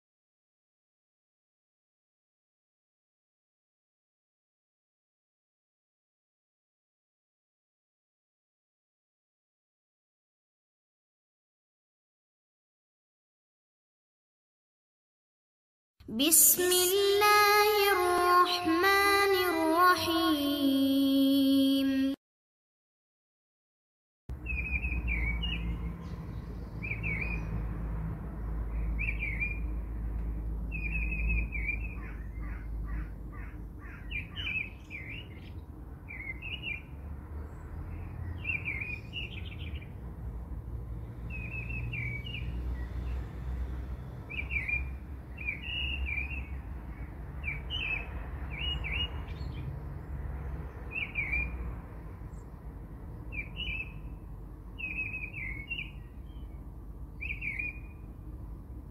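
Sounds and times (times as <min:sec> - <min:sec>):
small birds chirping: 0:24.3 - 0:27.7, 0:28.4 - 0:29.8, 0:30.7 - 0:40.0, 0:41.2 - 0:43.2, 0:44.3 - 0:51.6, 0:52.2 - 0:58.1.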